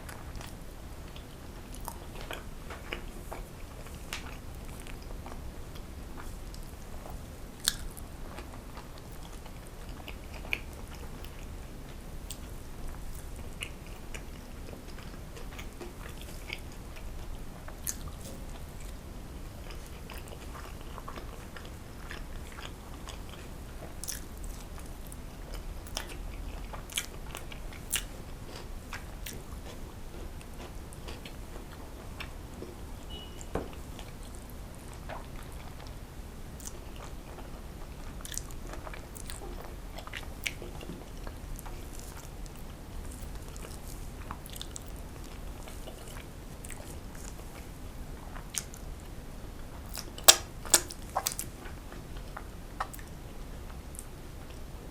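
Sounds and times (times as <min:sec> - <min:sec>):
chewing soft food: 0:00.0 - 0:54.9
wet mouth clicks: 0:49.9 - 0:51.4.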